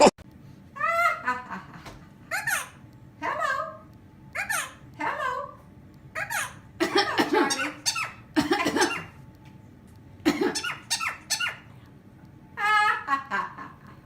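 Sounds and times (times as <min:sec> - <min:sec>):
animal squeaky calls: 0:02.3 - 0:02.8, 0:03.4 - 0:05.4, 0:06.2 - 0:09.2, 0:10.4 - 0:11.7.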